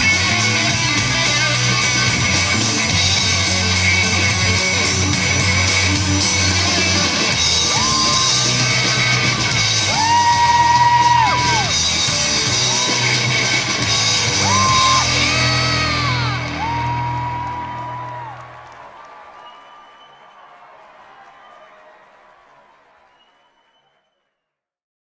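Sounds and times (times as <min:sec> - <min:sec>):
live rock band playing: 0:00.0 - 0:18.3
bass line: 0:00.0 - 0:18.5.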